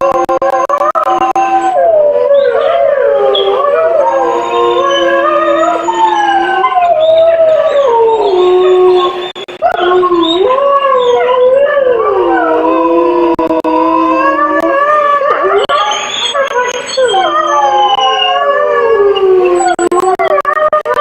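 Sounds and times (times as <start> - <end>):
wolves howling in chorus: 0.0 - 21.0.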